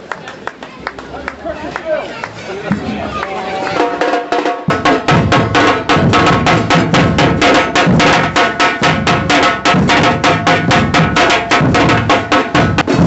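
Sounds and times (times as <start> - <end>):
drums beating fast rhythm: 1.4 - 13.0.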